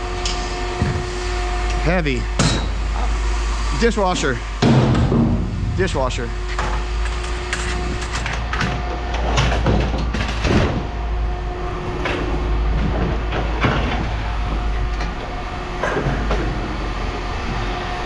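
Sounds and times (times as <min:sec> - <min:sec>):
low engine rumble: 0:05.3 - 0:09.2, 0:10.7 - 0:18.0.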